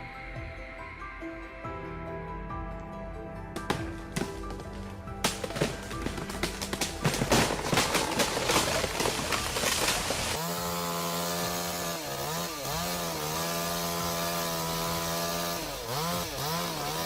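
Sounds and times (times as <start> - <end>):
rough crackling noise: 5.7 - 10.4
chainsaw running at high revs: 7.8 - 17.0.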